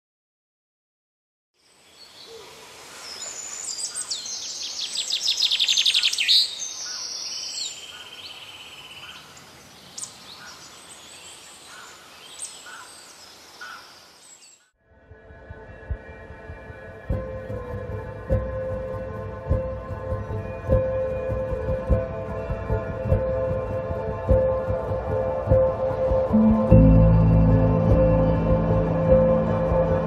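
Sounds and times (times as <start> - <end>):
songbirds singing: 1.6 - 14.7.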